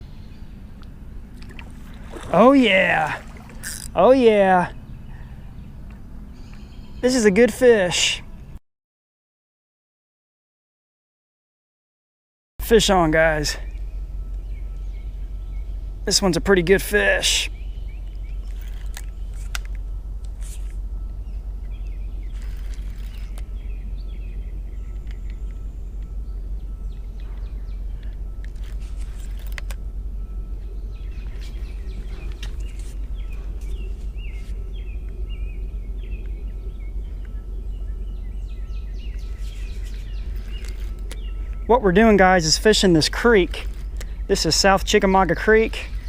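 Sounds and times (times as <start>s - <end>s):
birds chirping: 0.0s - 8.6s, 12.6s - 46.0s
low rumble: 12.6s - 46.0s.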